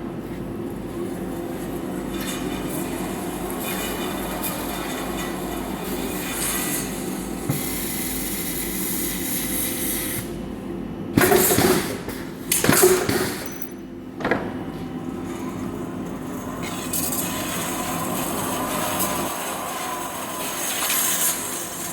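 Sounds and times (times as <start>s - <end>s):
machinery humming: 13.4s - 21.9s.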